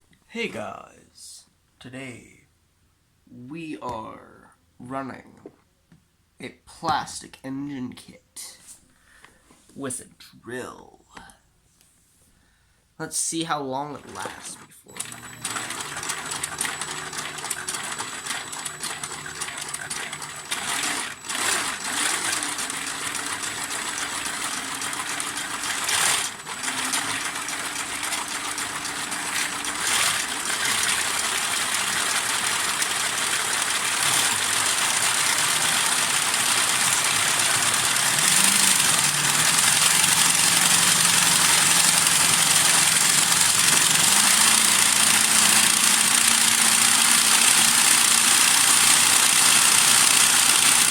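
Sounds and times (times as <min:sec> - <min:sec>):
engine model mechanical clatter: 0:14.0 - 0:50.9
drill hum: 0:15.0 - 0:50.9.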